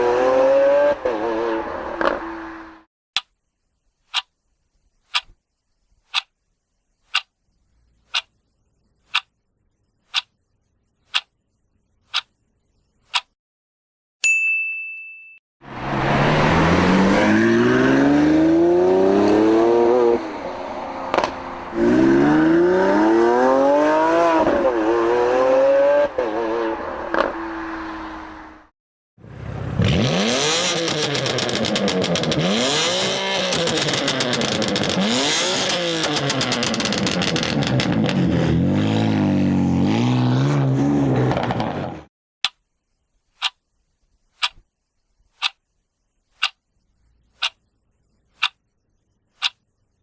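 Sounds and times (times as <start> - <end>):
car engine accelerating and revving: 0.0 - 2.9, 15.7 - 28.6, 29.2 - 42.1.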